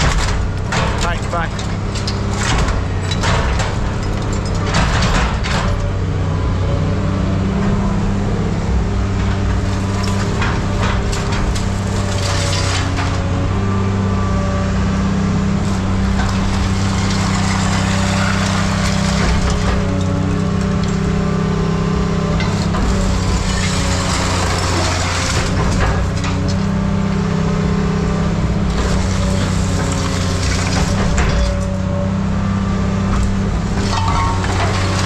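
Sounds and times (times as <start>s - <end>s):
scrap metal clanking: 0.0s - 5.8s, 9.1s - 13.4s, 15.6s - 21.2s, 22.3s - 26.9s, 28.6s - 32.0s, 33.1s - 35.0s
diesel machine running: 0.0s - 35.0s.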